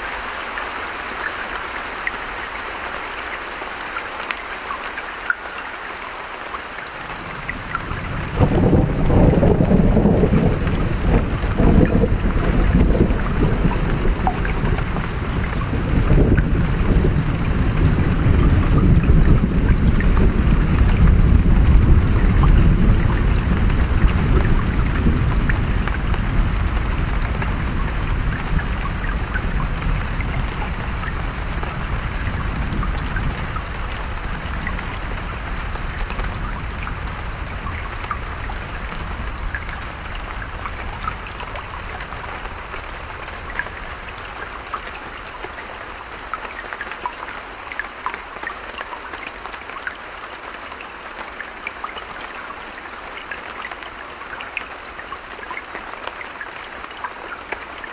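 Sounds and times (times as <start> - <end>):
steady rain: 0.0 - 57.9
low rumble of thunder: 7.2 - 44.2.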